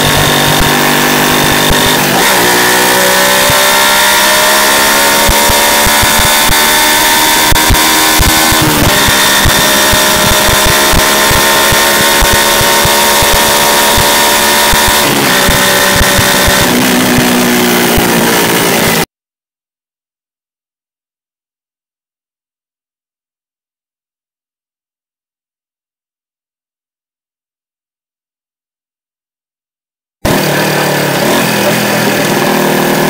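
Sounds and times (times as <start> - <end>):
motorcycle engine revving: 0.0 - 19.1, 30.2 - 33.0.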